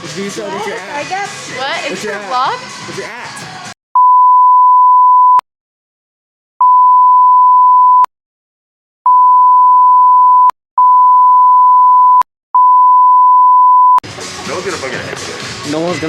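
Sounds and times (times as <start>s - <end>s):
censor bleep: 4.0s - 5.4s, 6.6s - 8.1s, 9.1s - 14.0s.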